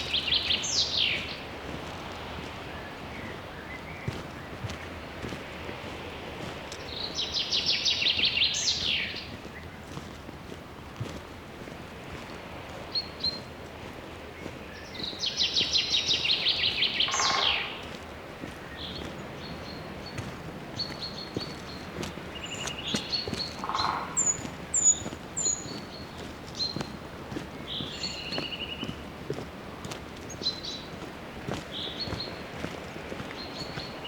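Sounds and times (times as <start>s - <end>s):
songbird trill: 0.0s - 5.3s, 6.7s - 9.8s, 14.4s - 29.0s, 30.2s - 34.0s.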